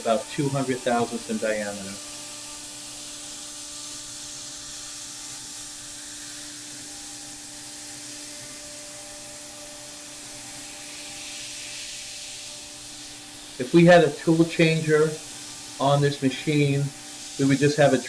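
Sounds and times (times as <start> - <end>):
cutter routing plastic: 0.0 - 10.6
compressed air hissing: 0.0 - 18.0
router spindle humming: 0.0 - 18.0.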